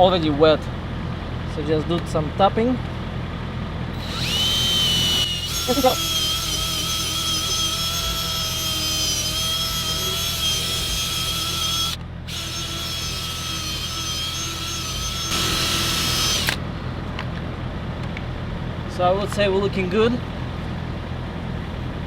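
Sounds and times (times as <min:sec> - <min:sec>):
drill motor whine: 0:04.0 - 0:16.6.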